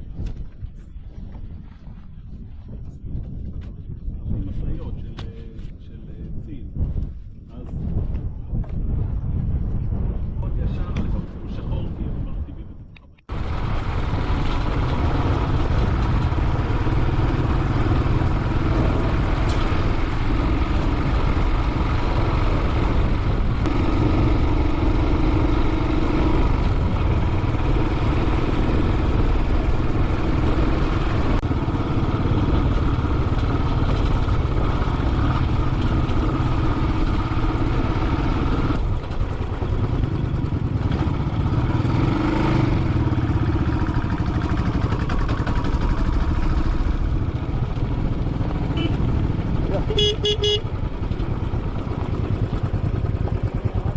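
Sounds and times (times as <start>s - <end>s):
motorcycle engine running: 13.3s - 53.9s.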